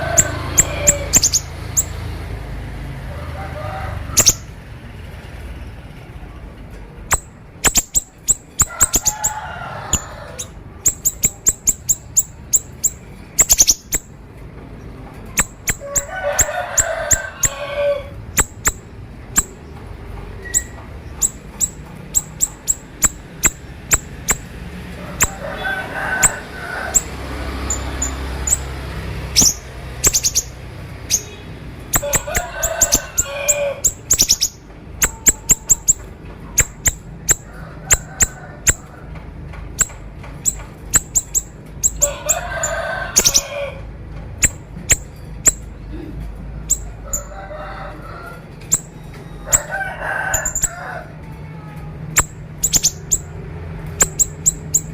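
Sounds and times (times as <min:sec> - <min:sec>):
songbird chirping rapidly: 0:00.0 - 0:02.3, 0:04.1 - 0:04.6, 0:07.0 - 0:14.2, 0:15.3 - 0:38.9, 0:39.8 - 0:42.5, 0:43.1 - 0:43.6, 0:44.4 - 0:45.8, 0:46.6 - 0:47.3, 0:50.3 - 0:50.8, 0:52.2 - 0:54.9
buzzy bird phrases: 0:00.0 - 0:38.9, 0:39.8 - 0:54.9.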